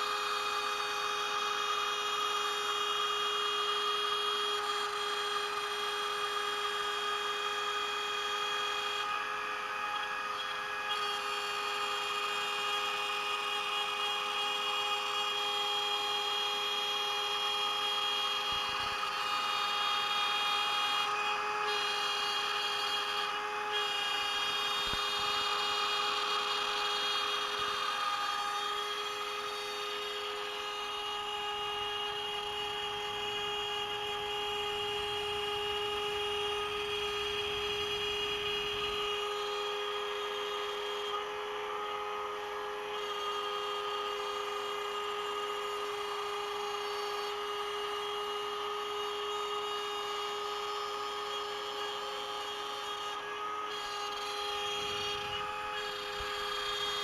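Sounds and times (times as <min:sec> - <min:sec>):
router spindle whining: 0:00.0 - 0:57.0
end mill cutting plywood: 0:16.8 - 0:57.0.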